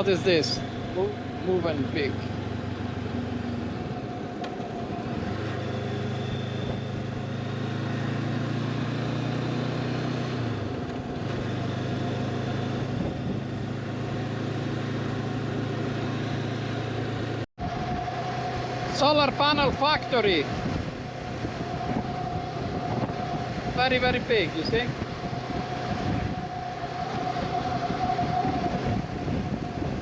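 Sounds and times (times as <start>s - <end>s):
motorcycle engine cruising: 0.0s - 30.0s
wind and road noise: 0.0s - 30.0s.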